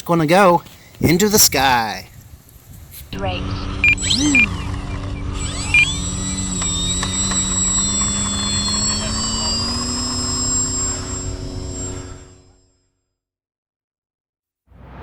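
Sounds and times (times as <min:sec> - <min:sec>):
electric motor and propeller whine: 0:03.1 - 0:12.8.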